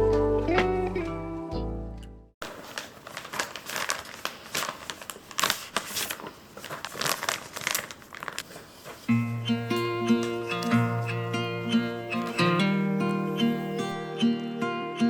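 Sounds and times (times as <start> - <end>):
crinkling and rustling: 2.4 - 11.0, 12.1 - 13.2
guitar music: 9.1 - 15.0.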